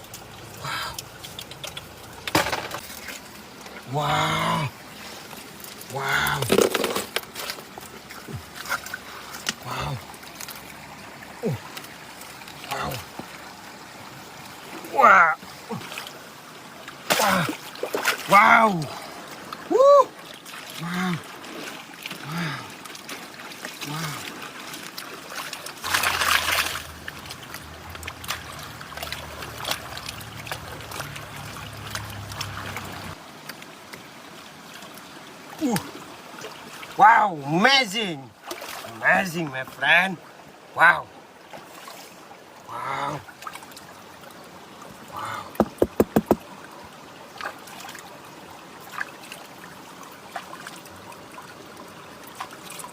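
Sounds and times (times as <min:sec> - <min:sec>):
water sloshing and trickling: 0:00.0 - 0:52.9
water splash: 0:16.9 - 0:18.4, 0:20.3 - 0:33.2
sharp knocks: 0:45.6 - 0:46.4.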